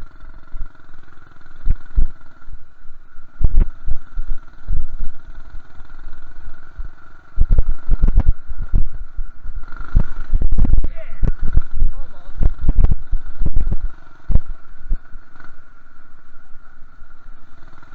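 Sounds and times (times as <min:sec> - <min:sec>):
high whine: 0:00.0 - 0:17.9
small engine running: 0:00.0 - 0:17.9
low thumps on microphone: 0:07.4 - 0:09.0, 0:09.9 - 0:15.0.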